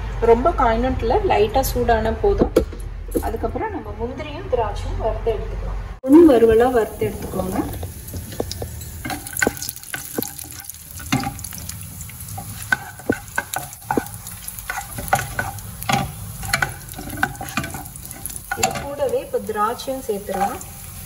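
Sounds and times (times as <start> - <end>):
nuts frying in a pan: 6.0 - 21.0
spatula scraping a pan: 7.1 - 21.0.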